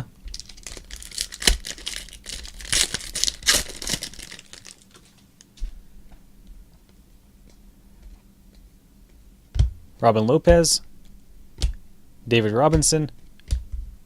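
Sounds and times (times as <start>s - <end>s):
plastic wrapper crinkling and tearing: 0.3s - 5.2s.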